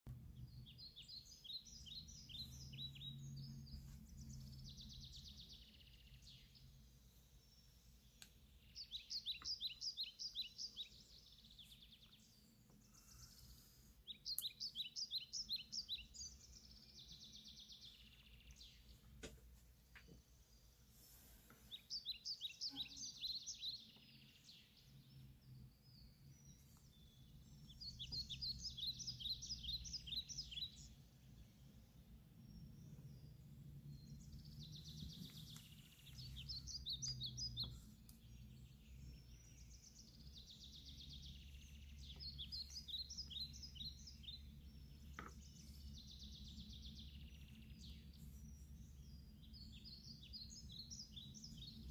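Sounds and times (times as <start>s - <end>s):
songbird chirping: 0.1s - 51.9s
low steady hum: 22.5s - 51.9s.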